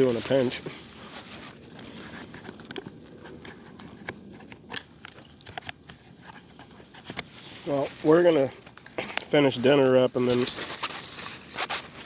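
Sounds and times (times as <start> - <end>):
faint rustling: 0.0 - 4.7.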